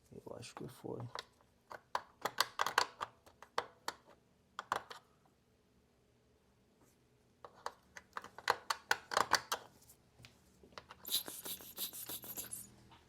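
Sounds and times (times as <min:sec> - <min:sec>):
small plastic clicks and taps: 0:00.6 - 0:05.0, 0:07.4 - 0:09.7
scraping rub on plastic: 0:11.1 - 0:12.7.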